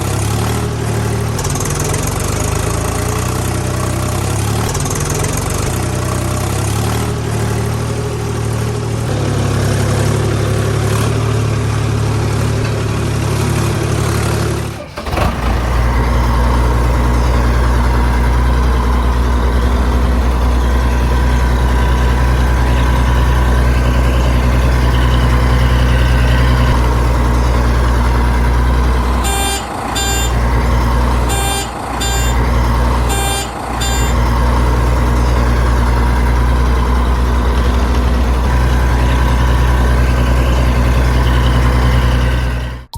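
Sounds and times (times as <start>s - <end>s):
deeper heavier engine: 0.0s - 42.9s
tractor engine running: 0.0s - 42.9s
short high beeps: 29.2s - 30.4s, 31.3s - 34.2s.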